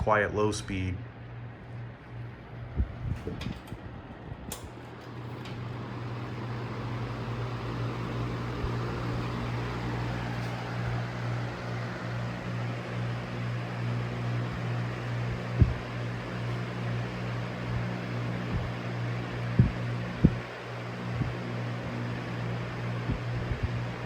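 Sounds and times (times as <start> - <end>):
fan air rushing: 0.0 - 24.0
low motor hum: 1.0 - 24.0
fan switch clicks: 3.2 - 13.0.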